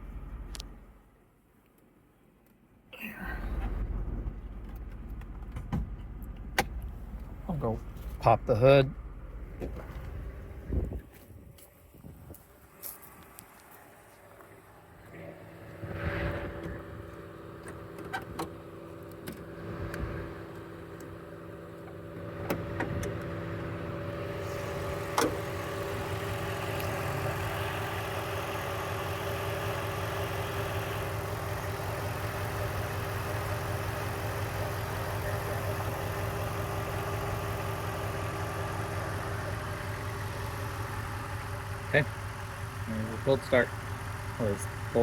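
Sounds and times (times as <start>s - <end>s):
car engine idling: 0.0s - 1.3s, 3.0s - 45.0s
car hood clicks and clunk: 17.6s - 19.5s, 22.4s - 23.3s, 25.1s - 25.4s.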